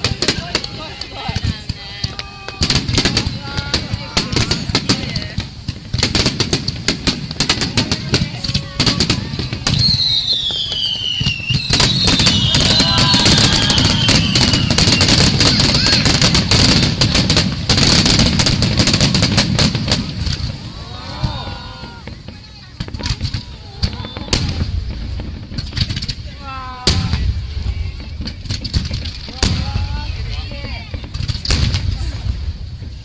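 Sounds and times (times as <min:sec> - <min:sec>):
fireworks bangs: 0:00.0 - 0:33.0
fireworks whistles falling in pitch: 0:08.4 - 0:16.8, 0:21.2 - 0:28.6.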